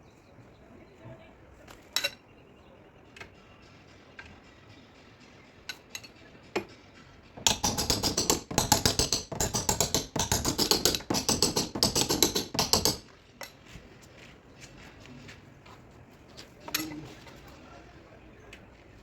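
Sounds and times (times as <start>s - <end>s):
hammer tapping on car panel: 7.5s - 13.0s.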